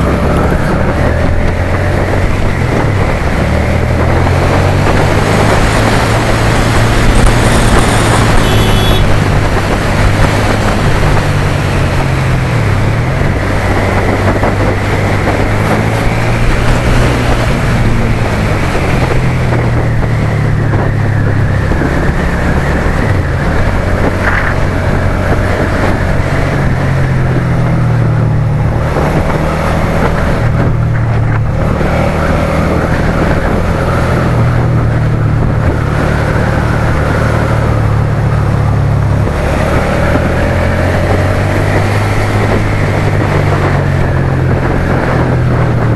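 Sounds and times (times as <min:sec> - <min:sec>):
motorcycle engine running: 0:00.0 - 0:45.9
steady noisy rush: 0:00.0 - 0:45.9.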